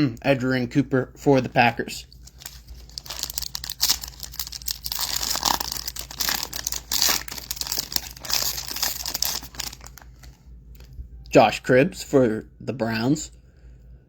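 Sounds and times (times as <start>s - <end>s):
foil wrapper tearing and crinkling: 2.2s - 10.3s.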